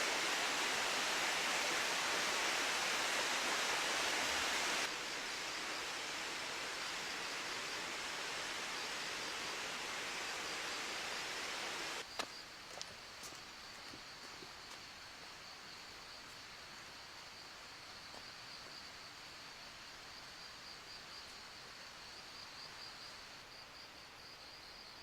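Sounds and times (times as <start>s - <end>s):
soft outdoor hiss: 0.0s - 25.0s
insects trilling: 0.4s - 16.0s.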